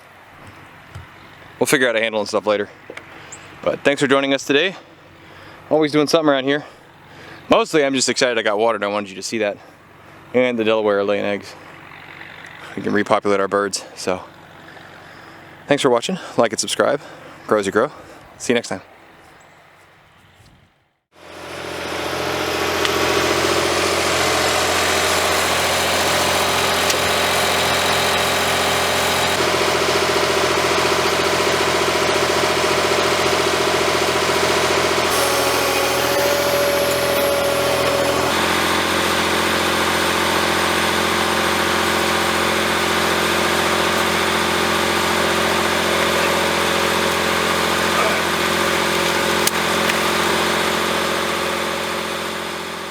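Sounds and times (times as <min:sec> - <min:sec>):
engine running steadily: 0:13.8 - 0:15.7, 0:21.2 - 0:52.9.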